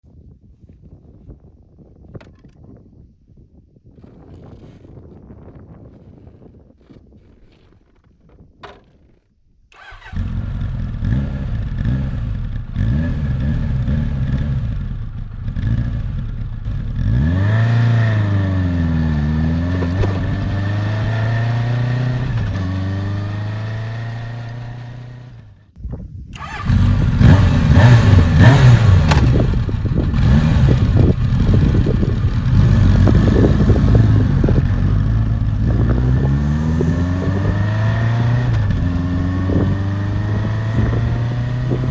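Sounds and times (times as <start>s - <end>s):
motorcycle engine running: 9.8s - 25.6s, 26.4s - 41.9s.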